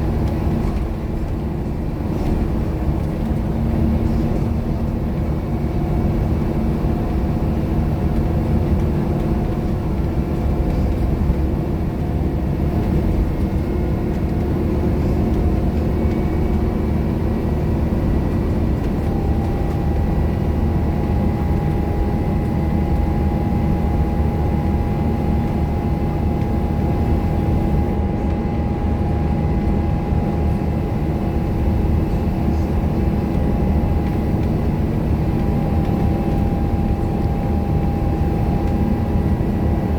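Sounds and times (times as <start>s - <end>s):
bus engine running: 0.0s - 39.9s.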